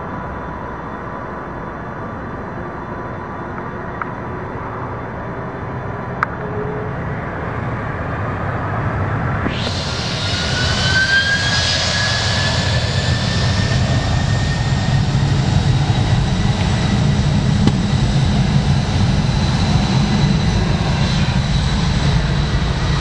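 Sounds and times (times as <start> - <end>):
jet taking off: 5.4 - 23.0.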